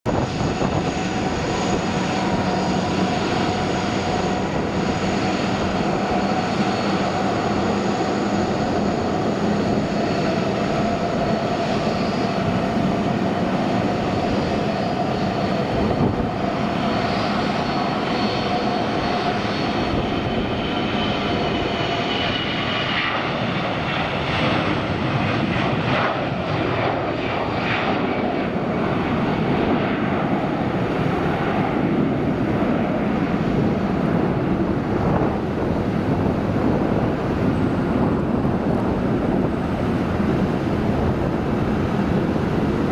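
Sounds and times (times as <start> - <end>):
jet engines at takeoff: 0.0 - 42.9.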